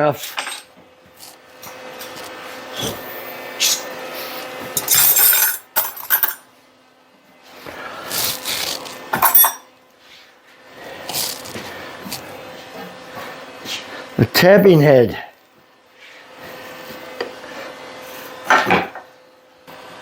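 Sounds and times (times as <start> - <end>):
metal tools clinking on workbench: 0.3 - 0.7, 4.8 - 6.4, 9.1 - 9.7.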